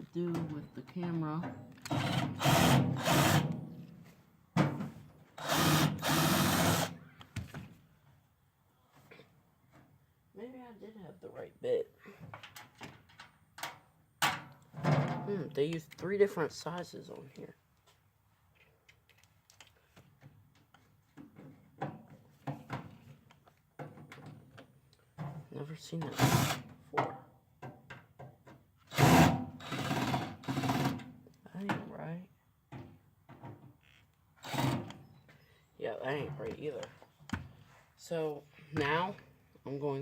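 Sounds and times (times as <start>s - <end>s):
power drill running: 1.9s - 3.5s, 5.4s - 7.0s, 26.1s - 26.6s, 28.9s - 30.9s, 34.4s - 35.0s.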